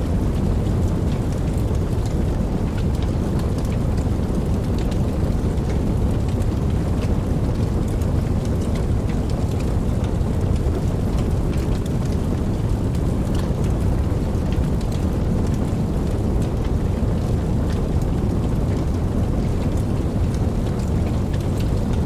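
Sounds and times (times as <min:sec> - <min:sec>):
steady rain: 0:00.0 - 0:22.0.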